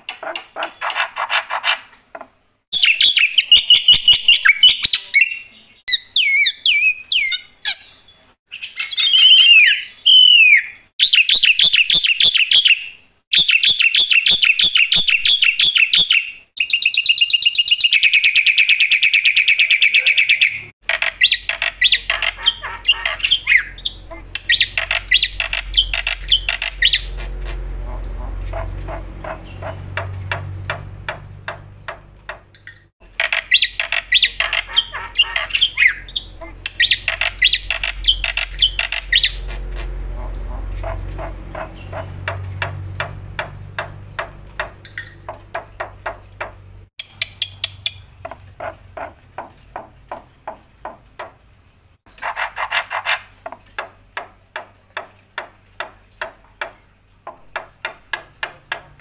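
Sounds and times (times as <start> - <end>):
harsh high bird chattering calls: 8.5 - 31.2, 33.2 - 44.0
bird song with sharp clicking notes: 9.3 - 27.6, 28.5 - 39.9, 40.7 - 48.2.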